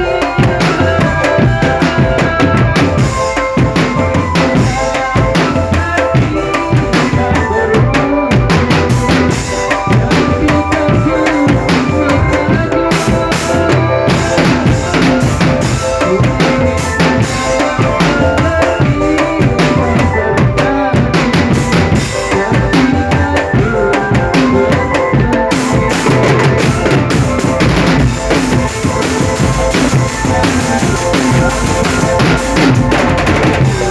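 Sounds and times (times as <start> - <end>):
bass drums: 0.0 - 33.9
melody over drums: 0.0 - 33.9
snare drums: 0.0 - 33.9.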